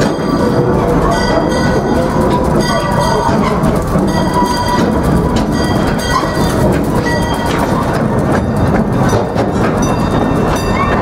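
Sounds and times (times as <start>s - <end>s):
train cars rumbling on track: 0.0s - 11.0s.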